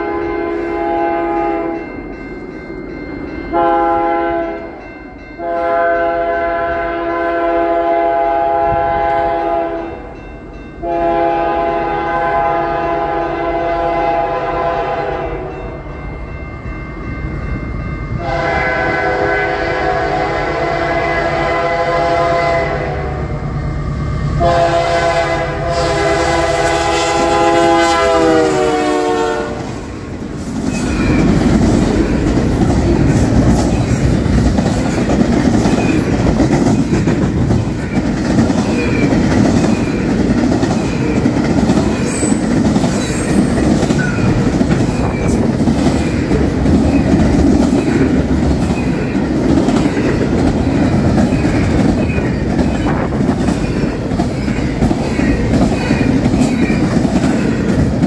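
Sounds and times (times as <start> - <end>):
train horn chord: 0.0 - 1.9, 3.5 - 4.8, 5.4 - 10.0, 10.8 - 15.6, 18.2 - 23.4, 24.4 - 29.8
train rumbling by: 0.0 - 58.0
wheels clicking over rail joints: 30.2 - 58.0.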